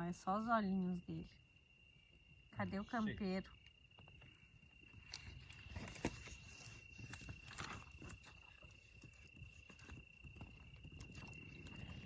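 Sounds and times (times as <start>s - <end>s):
insect high-pitched trill: 0.0s - 12.0s
small clicks and crackles: 5.0s - 12.0s.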